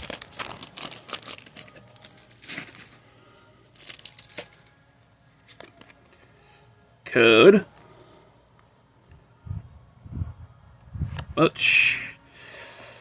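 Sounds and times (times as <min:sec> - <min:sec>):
foil wrapper crinkling and tearing: 0:00.0 - 0:03.0, 0:03.7 - 0:04.8.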